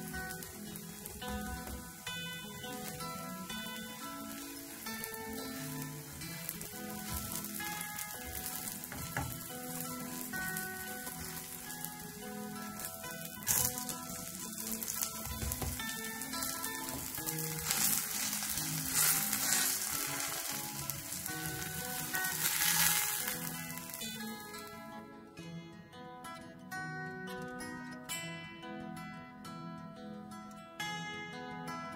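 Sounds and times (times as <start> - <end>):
pancake sizzling in oil: 0.0 - 24.8.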